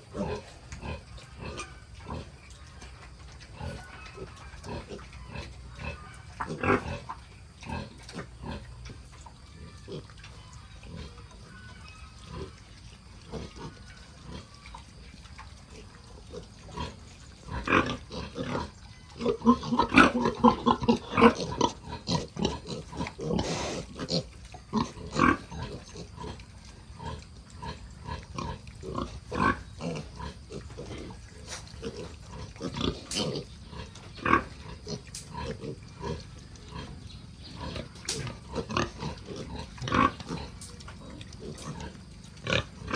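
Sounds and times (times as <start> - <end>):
piglets pitched calls: 0.0 - 42.9
pigs grunting: 0.0 - 42.9.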